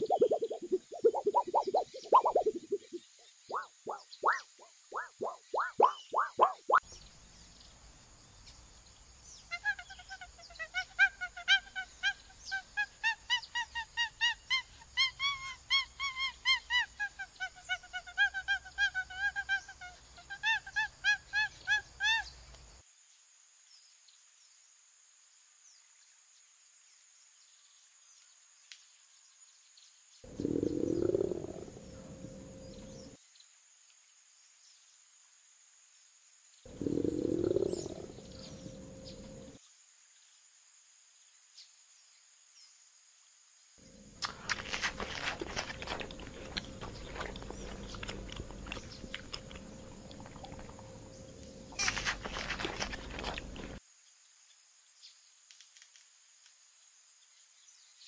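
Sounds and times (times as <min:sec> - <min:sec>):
monkey calling: 0:00.0 - 0:06.8, 0:09.5 - 0:22.3, 0:43.9 - 0:53.8.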